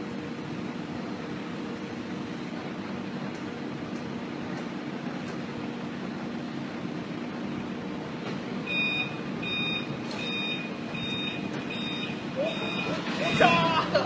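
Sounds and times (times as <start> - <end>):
heavy vehicle engine running: 0.0 - 14.0
reversing alarm beeping: 8.6 - 13.7.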